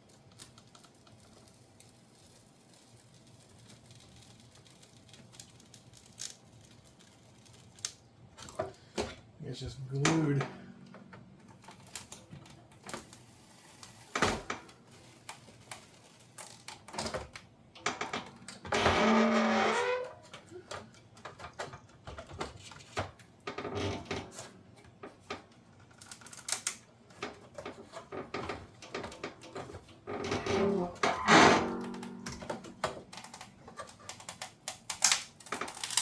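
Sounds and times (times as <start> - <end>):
plastic parts clicking and knocking: 20.2 - 36.0.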